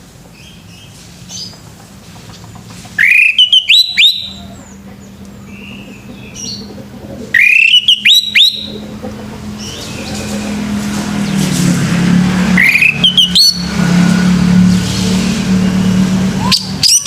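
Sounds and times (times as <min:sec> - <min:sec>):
thrush whistled song: 0:03.0 - 0:04.6, 0:07.4 - 0:08.8, 0:12.4 - 0:17.0.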